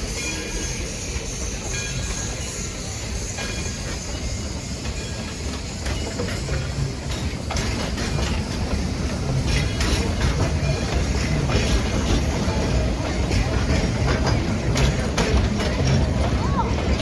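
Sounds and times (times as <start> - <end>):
train rumbling on rails: 0.0 - 17.0
sharp rail clacks: 4.8 - 17.0.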